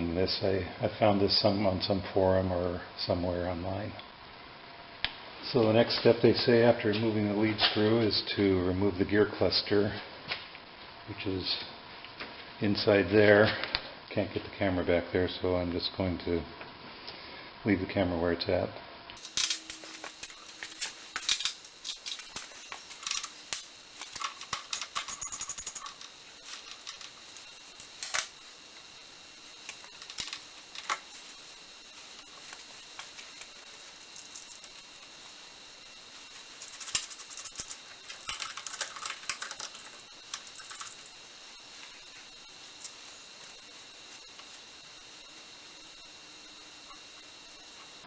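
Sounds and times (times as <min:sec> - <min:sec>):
faint high whine: 0:17.2 - 0:48.0
metal parts clinking: 0:19.2 - 0:28.3, 0:36.3 - 0:41.1.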